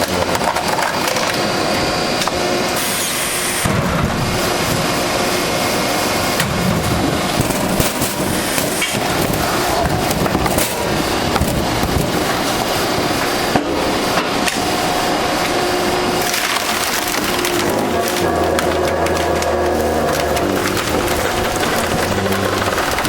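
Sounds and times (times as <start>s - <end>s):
steady machine hum: 0.0s - 23.0s
wood cracking and splintering: 15.4s - 23.0s.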